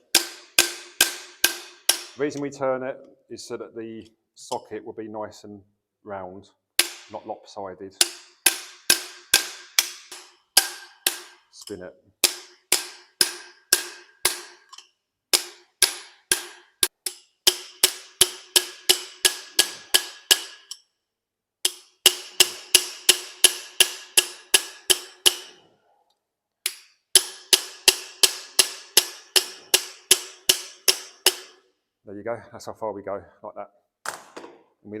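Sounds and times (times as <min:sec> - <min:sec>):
hammer striking metal tool: 0:00.0 - 0:02.5, 0:06.8 - 0:07.3, 0:08.0 - 0:20.9, 0:21.6 - 0:25.7, 0:26.7 - 0:31.7.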